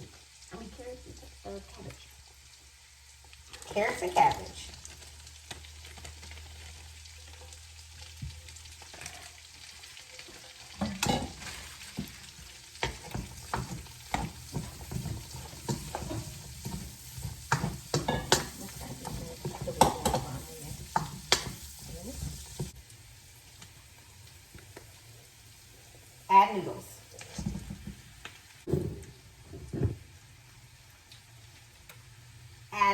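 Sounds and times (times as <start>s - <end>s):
vegetables sizzling in a pan: 0.0s - 32.9s
utensil scraping and knocking pan: 10.8s - 22.7s.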